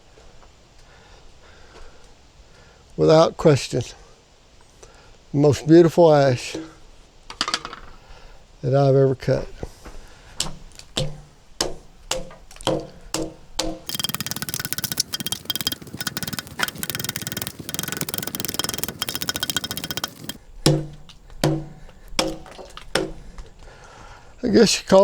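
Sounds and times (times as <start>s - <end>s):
rattling buzzing noise: 10.5s - 23.2s.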